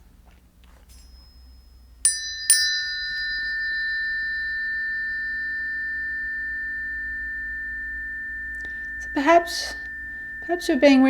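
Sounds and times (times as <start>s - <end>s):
tuning forks ringing: 0.9s - 11.0s.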